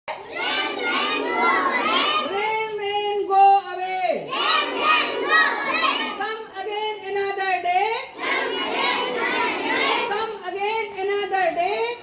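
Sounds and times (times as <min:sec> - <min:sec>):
children singing together: 0:00.3 - 0:02.4, 0:04.3 - 0:06.2, 0:08.2 - 0:10.2.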